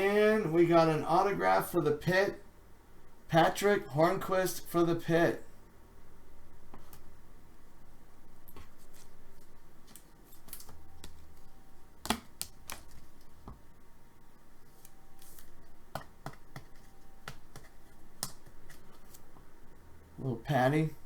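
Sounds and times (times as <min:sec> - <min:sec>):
trading cards being handled: 0:08.5 - 0:13.6, 0:14.6 - 0:19.4.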